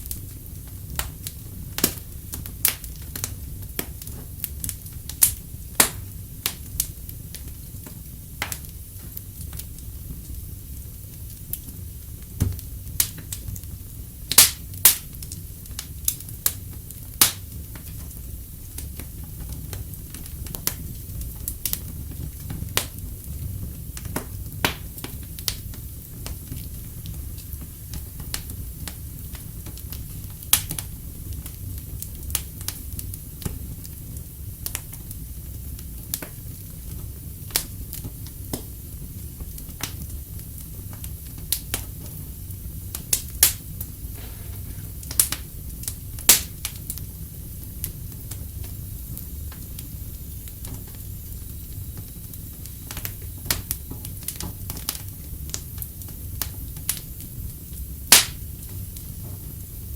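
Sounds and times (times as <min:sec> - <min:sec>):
fire low rumble: 0:00.0 - 0:59.9
wood fire crackling and popping: 0:00.0 - 0:59.9.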